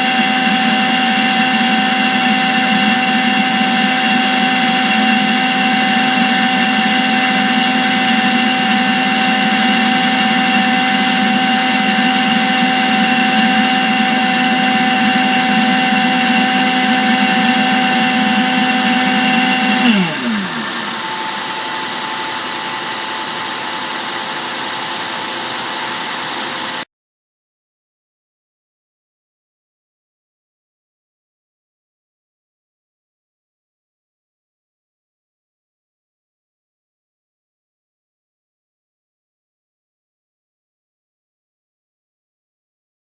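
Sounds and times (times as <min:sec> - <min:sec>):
air pump blower whine: 0:00.0 - 0:26.9.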